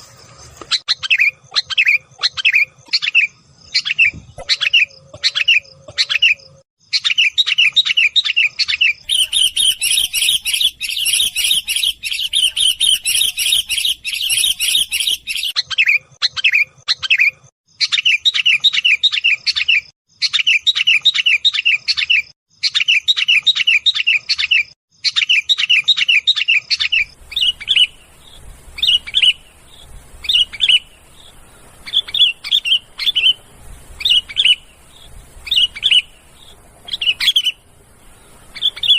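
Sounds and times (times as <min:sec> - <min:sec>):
bird chattering chirps: 0:00.7 - 0:38.9
faint hiss: 0:27.2 - 0:38.9.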